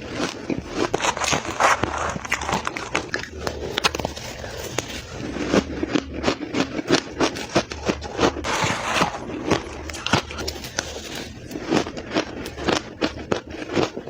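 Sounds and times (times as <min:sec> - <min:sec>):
crushed ice being chewed: 0:00.0 - 0:14.0.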